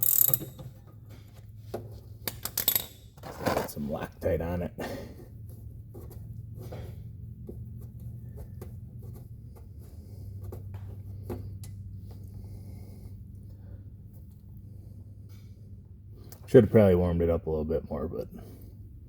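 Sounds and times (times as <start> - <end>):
hand tools clicking and knocking: 0.0 - 0.9, 2.2 - 3.4
steady low hum: 0.0 - 19.0.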